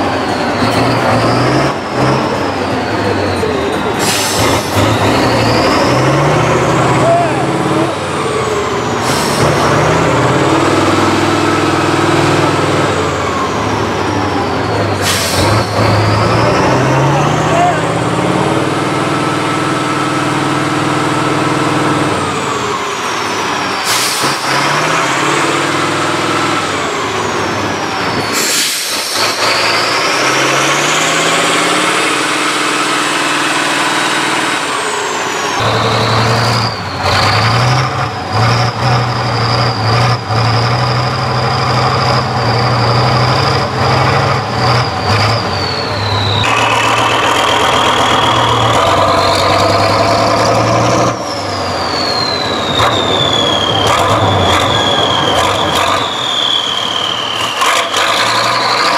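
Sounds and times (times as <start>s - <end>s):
tractor diesel engines revving: 0.0s - 58.9s.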